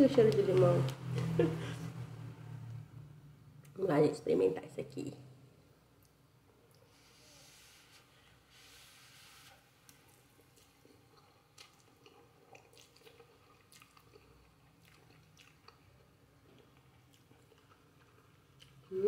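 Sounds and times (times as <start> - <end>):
chewing noodles: 9.9 - 19.0.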